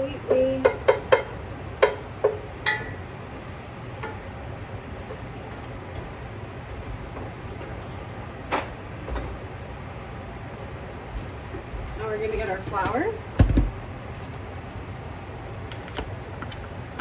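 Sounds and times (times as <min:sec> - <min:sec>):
steady low hum: 0:00.0 - 0:17.0
utensil clinking against pan: 0:00.3 - 0:03.0
dull thump: 0:13.4 - 0:13.8.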